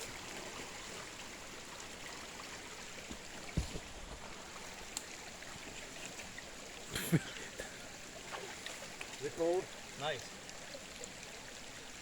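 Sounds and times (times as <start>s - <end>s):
creek water flowing over rocks: 0.0s - 12.0s
soft thump: 3.5s - 3.9s.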